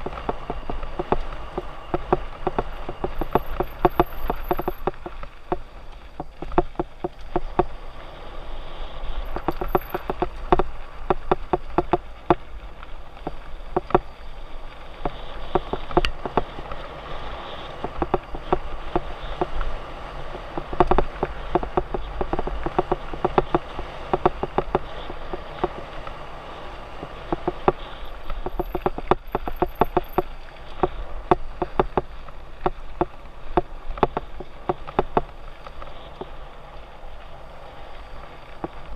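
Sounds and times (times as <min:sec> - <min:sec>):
bike rattling and clattering: 0:00.0 - 0:08.2, 0:09.0 - 0:38.9
bike tyres on dirt: 0:00.0 - 0:38.9.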